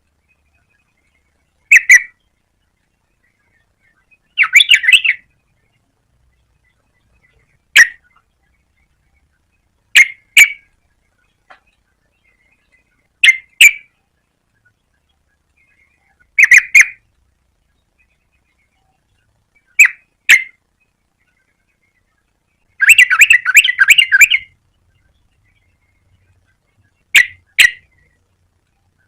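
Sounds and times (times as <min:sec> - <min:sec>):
bird calling in sharp notes: 0:00.2 - 0:02.3, 0:03.2 - 0:05.8, 0:06.6 - 0:09.3, 0:09.9 - 0:10.8, 0:11.5 - 0:14.0, 0:15.5 - 0:17.0, 0:17.9 - 0:28.2
bird chattering: 0:00.3 - 0:02.3, 0:03.2 - 0:05.8, 0:06.6 - 0:17.0, 0:17.8 - 0:28.3.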